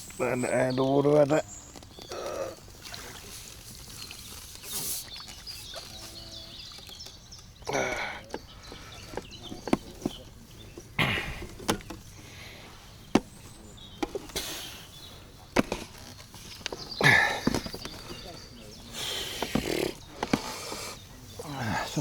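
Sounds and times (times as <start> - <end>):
sharp clicks of tackle: 1.1 - 22.0
rustling: 8.5 - 22.0.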